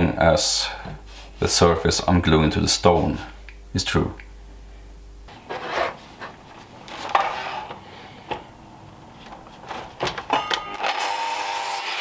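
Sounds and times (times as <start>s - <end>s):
power tool motor humming: 10.8s - 12.0s.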